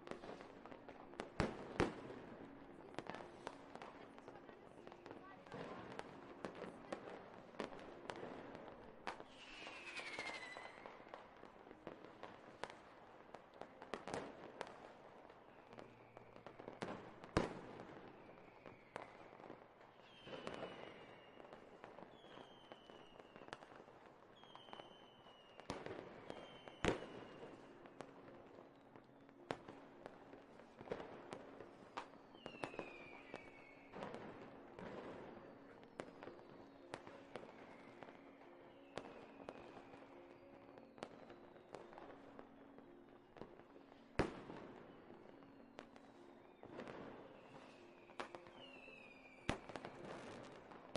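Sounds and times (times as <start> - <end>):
fireworks bangs and crackles: 0.0 - 50.9
whistling rockets: 9.2 - 11.4, 18.0 - 23.8, 24.4 - 27.7, 31.7 - 42.4, 45.7 - 50.7.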